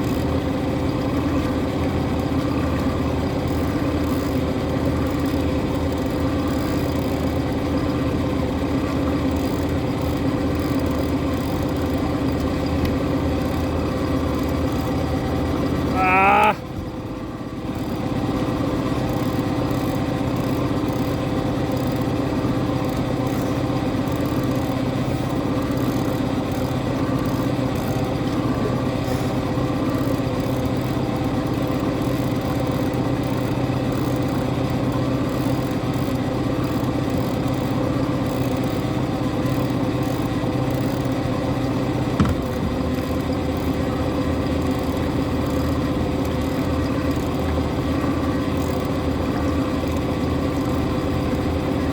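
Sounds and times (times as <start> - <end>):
boat engine idling: 0.0 - 51.9
brief knock: 42.2 - 42.5.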